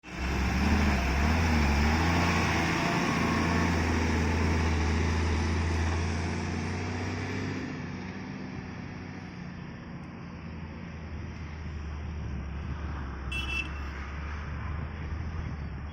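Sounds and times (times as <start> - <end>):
heavy diesel engine droning: 0.0 - 7.7.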